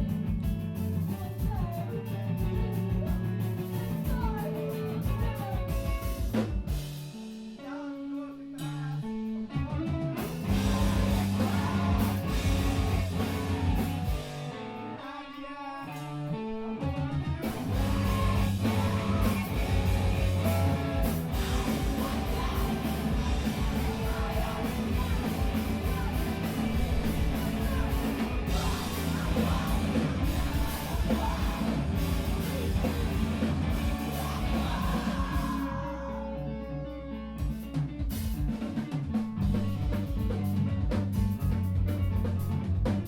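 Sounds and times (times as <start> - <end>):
fast drums: 0.0 - 7.8, 9.6 - 14.5, 17.3 - 35.8, 37.4 - 43.0
rock guitar: 0.0 - 43.0
yelled vocals: 7.6 - 36.6.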